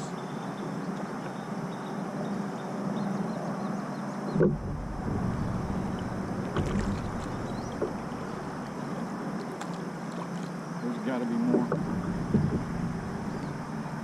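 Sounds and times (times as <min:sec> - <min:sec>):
knocks on kayak: 0:04.4 - 0:08.2, 0:11.5 - 0:12.9
low rumble: 0:04.4 - 0:08.9, 0:11.6 - 0:14.0.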